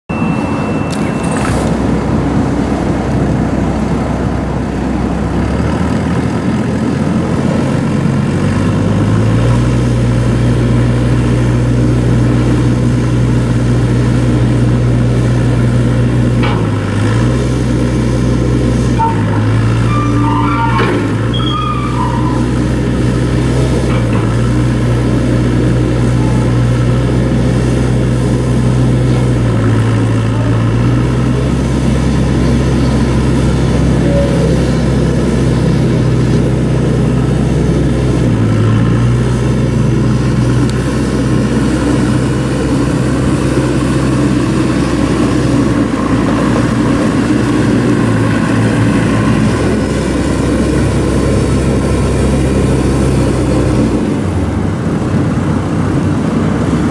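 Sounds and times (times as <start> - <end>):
backhoe diesel engine running: 0.1 - 56.9.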